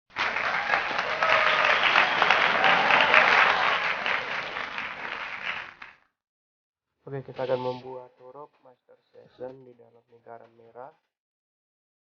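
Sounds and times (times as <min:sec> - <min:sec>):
crowd applauding: 0:00.1 - 0:06.0.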